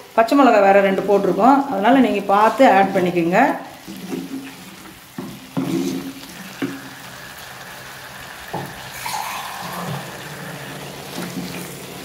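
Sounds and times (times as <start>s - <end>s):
chicken sizzling in a pot: 0.0s - 12.0s
wooden spatula knocking pot: 5.1s - 6.8s.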